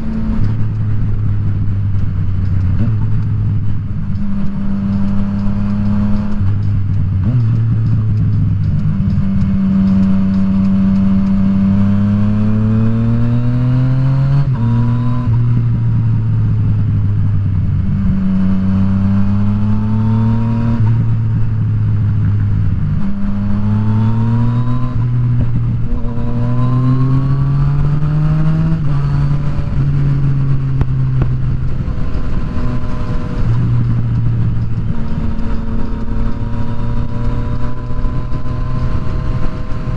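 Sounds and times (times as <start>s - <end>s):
motorcycle engine revving through gears: 0.0s - 39.9s
wind noise: 0.0s - 39.9s.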